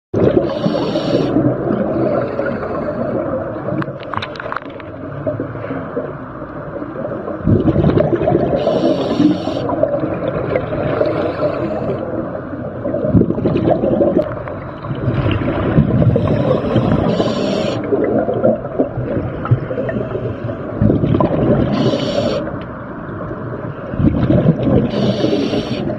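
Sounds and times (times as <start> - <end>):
exhaled bubbles rumbling underwater: 0.2 - 25.9
regulator hiss: 0.5 - 1.3, 8.6 - 9.7, 17.0 - 17.9, 21.7 - 22.4, 24.9 - 25.9.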